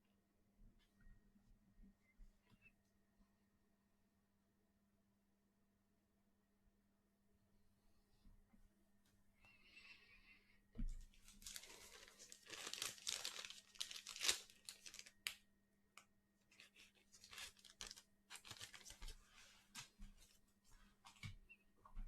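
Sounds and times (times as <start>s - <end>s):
packaging crinkling: 11.2s - 15.4s, 16.5s - 19.2s.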